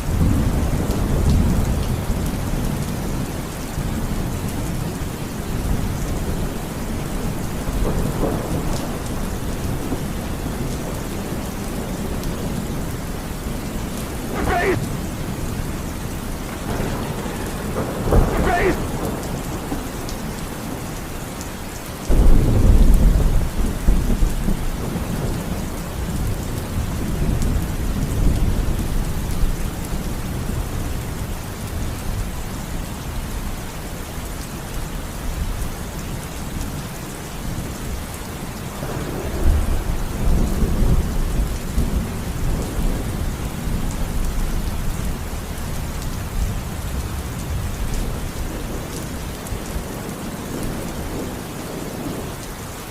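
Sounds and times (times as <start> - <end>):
heavy rain: 0.0 - 52.9
thunder clap and rumble: 0.1 - 20.9, 22.1 - 31.9, 38.8 - 45.3.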